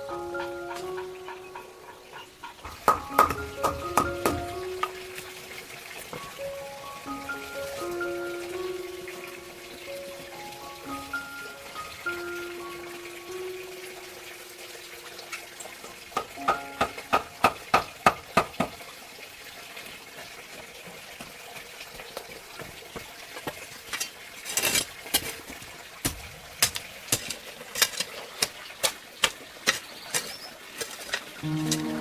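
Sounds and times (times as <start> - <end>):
sharp knocks and clicks: 0.7 - 5.0.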